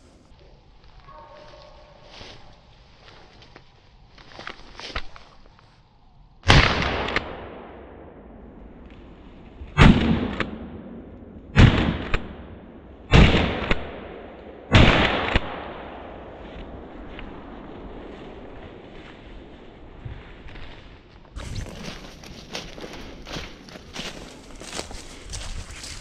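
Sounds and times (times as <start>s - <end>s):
shotgun shots echoing: 9.8s - 16.4s.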